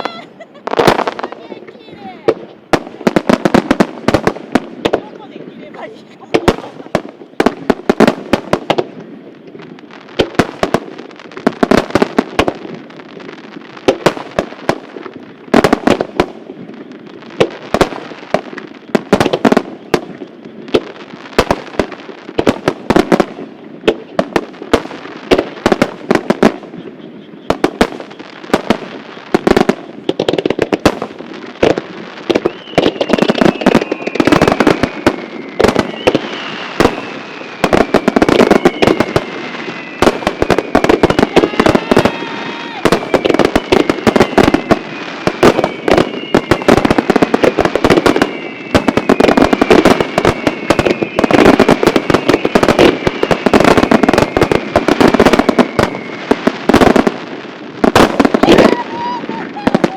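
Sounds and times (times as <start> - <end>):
falling firework whistle: 0.0 - 1.4, 25.3 - 59.9
rapid fireworks bangs: 0.0 - 59.9
rumble of firework bursts: 0.0 - 59.9.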